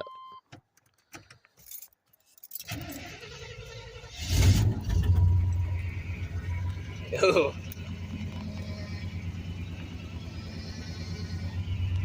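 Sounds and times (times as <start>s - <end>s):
keys jangling and clicking: 0.8s - 2.7s
starter cranking engine: 2.7s - 6.0s.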